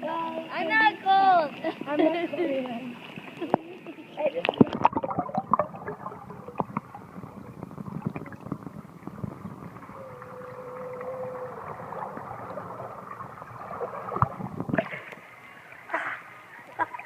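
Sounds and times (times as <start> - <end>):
muffled underwater bubbling: 3.3 - 15.2.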